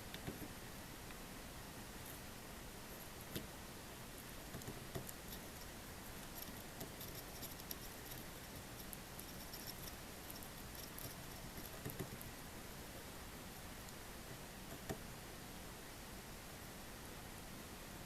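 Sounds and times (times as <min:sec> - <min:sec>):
low hiss: 0:00.0 - 0:18.0
soldering ticks and taps: 0:04.5 - 0:05.5, 0:06.2 - 0:12.3, 0:14.7 - 0:15.0.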